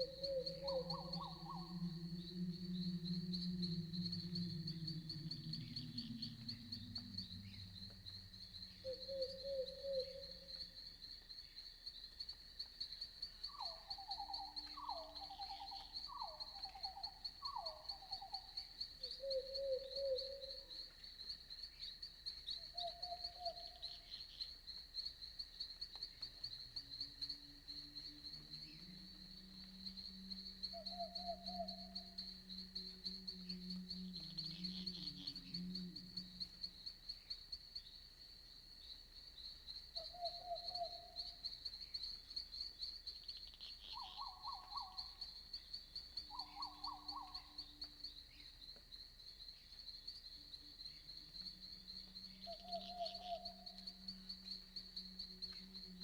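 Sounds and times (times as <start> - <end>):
low hooting call: 0.0 - 10.6, 28.6 - 36.8
night animal calls: 0.0 - 10.6, 13.5 - 20.7, 28.3 - 36.9, 40.0 - 41.4, 43.8 - 45.2, 46.3 - 47.7, 51.4 - 56.0
crickets trilling: 0.0 - 56.0.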